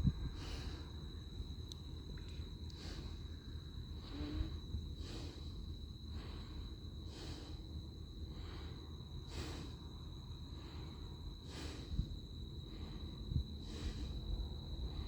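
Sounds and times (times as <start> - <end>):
person breathing: 3.9 - 15.0.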